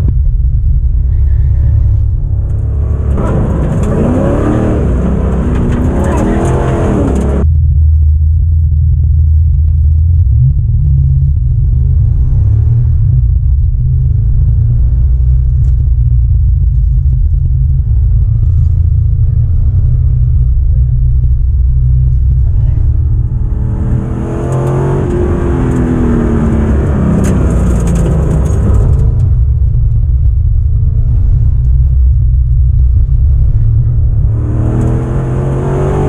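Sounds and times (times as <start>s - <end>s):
car engine revving: 0.0s - 7.5s, 8.4s - 36.0s.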